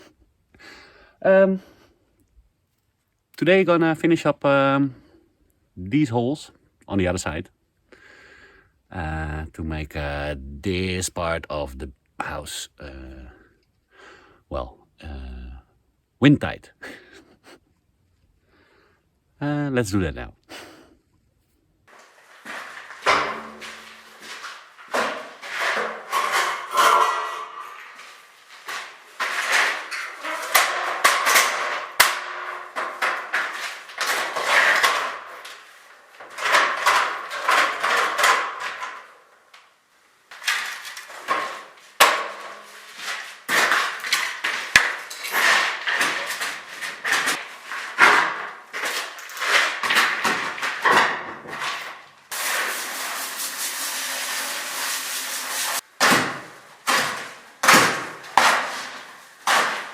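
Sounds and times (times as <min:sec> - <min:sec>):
steady hiss: 0:52.3 - 0:55.8.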